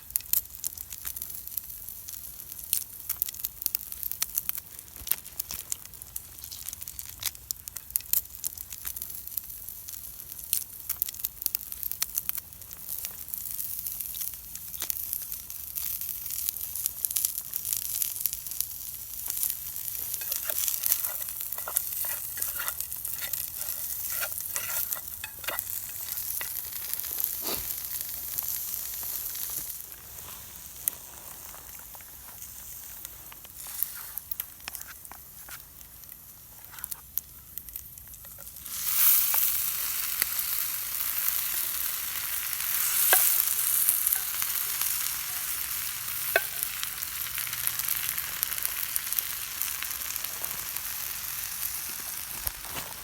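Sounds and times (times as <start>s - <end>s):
food sizzling in a pan: 0.0s - 53.0s
stirring clicks and scrapes: 19.2s - 28.6s, 33.3s - 35.7s, 46.3s - 46.7s.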